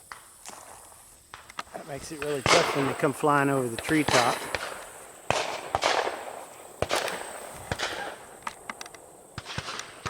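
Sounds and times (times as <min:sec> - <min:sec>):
distant shotgun shots: 0:02.2 - 0:03.2, 0:03.8 - 0:10.0.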